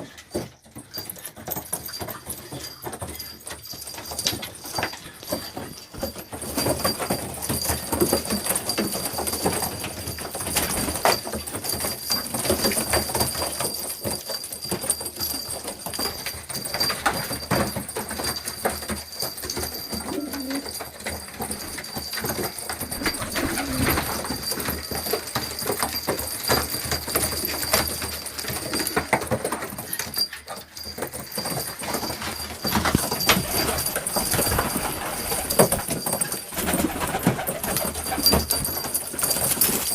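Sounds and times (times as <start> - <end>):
pigeons cooing: 19.9 - 20.8, 22.8 - 24.3.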